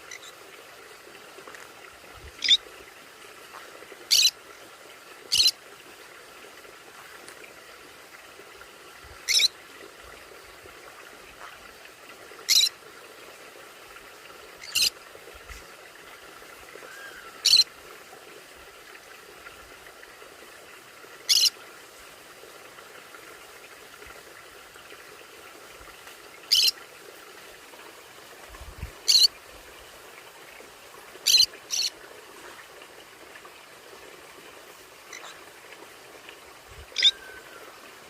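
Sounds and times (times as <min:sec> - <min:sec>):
parrot screeching: 0:37.0 - 0:37.6.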